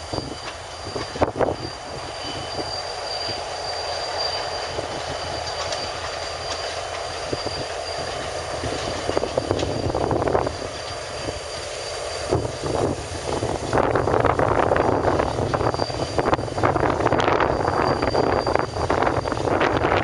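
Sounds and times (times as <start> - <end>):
diesel locomotive engine rumble: 0.0 - 20.0
thin high wheel squeal: 0.0 - 20.0
wheels clicking over rail joints: 3.2 - 11.3.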